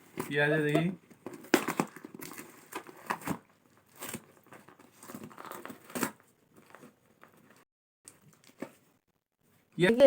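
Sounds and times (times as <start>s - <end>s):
dog tearing packaging: 1.3s - 6.8s.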